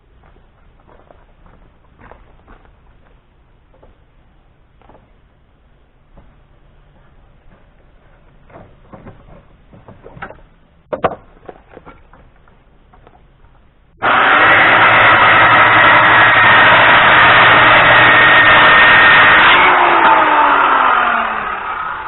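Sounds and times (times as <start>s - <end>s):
power saw whining: 14.0s - 22.0s.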